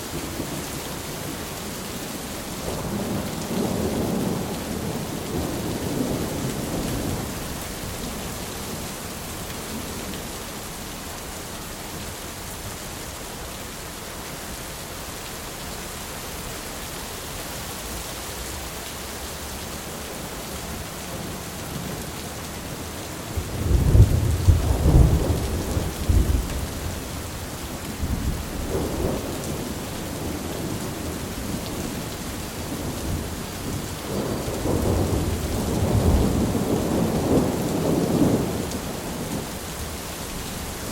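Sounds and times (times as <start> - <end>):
steady rain: 0.0 - 40.9
rolling thunder: 23.3 - 31.9, 32.7 - 39.4.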